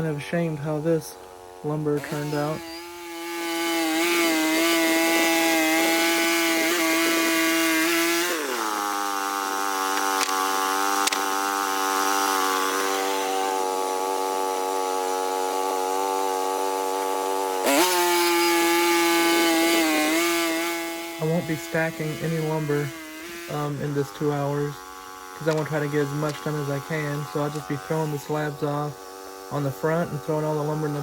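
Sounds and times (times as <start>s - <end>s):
sawmill engine running: 0.6s - 31.0s
sharp clicks: 9.9s - 10.4s, 11.0s - 11.3s, 25.4s - 26.6s.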